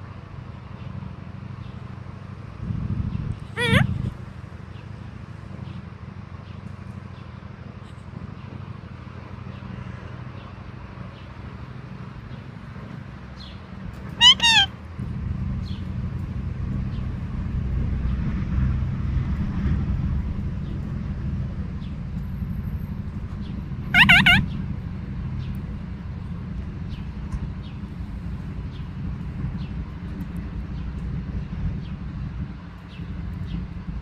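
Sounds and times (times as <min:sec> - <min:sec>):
parakeet squawking: 0:03.6 - 0:04.1, 0:14.2 - 0:14.7, 0:23.9 - 0:24.6.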